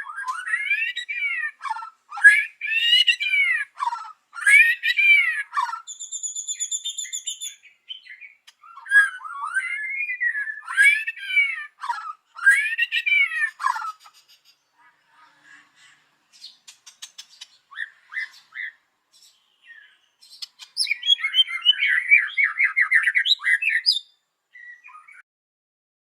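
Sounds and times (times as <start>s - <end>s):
rapid bird chattering: 0.0s - 24.0s
bird singing whistles: 4.4s - 11.8s, 16.4s - 25.2s
bird clicks: 16.6s - 17.6s.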